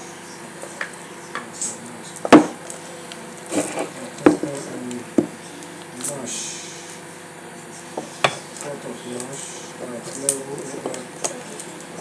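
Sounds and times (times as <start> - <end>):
dishes knocking and clattering: 2.3 - 2.7, 3.5 - 5.4, 8.0 - 8.5.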